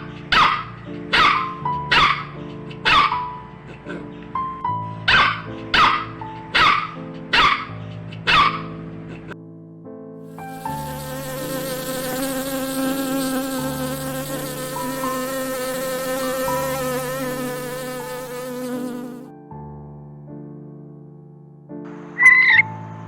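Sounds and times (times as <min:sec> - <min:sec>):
soft background music: 0:00.0 - 0:23.0
insect buzzing: 0:10.3 - 0:19.3.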